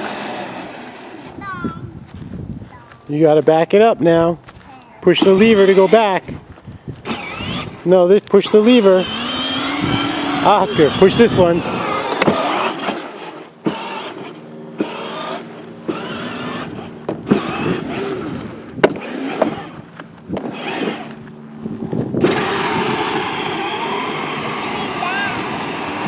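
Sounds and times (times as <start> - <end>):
toy car electric motor whirring: 5.1 - 26.0
knocks and bumps: 17.0 - 20.6.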